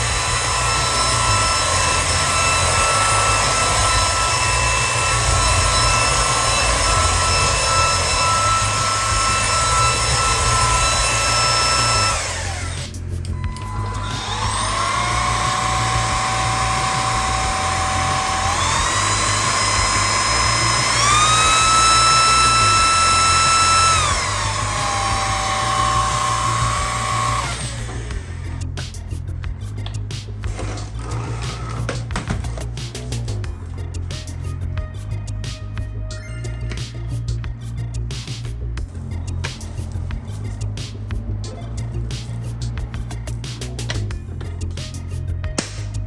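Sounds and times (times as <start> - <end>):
stick vacuum motor whining: 0.0 - 28.8.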